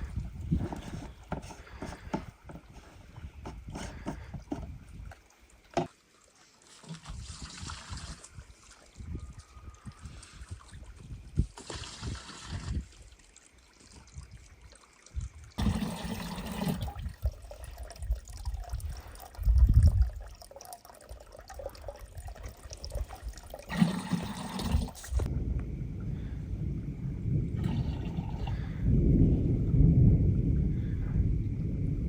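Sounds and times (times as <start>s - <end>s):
water trickling: 0.0s - 25.3s
low rumble: 25.2s - 32.0s.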